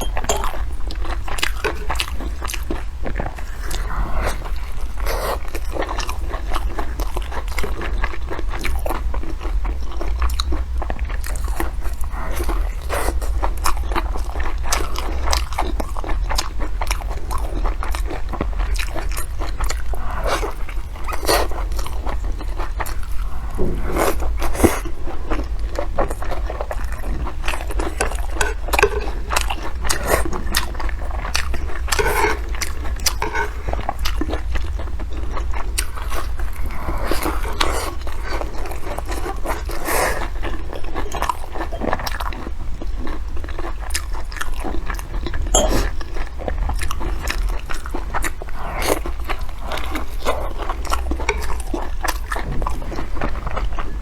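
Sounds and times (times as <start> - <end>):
person chewing crunchy food: 0.0 - 54.0
steady low hum: 19.9 - 40.4.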